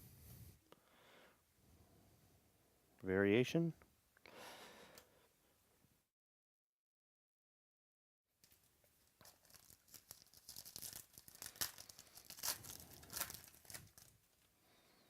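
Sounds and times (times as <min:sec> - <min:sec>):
card pack wrapper tearing and crinkling: 0:08.4 - 0:14.2.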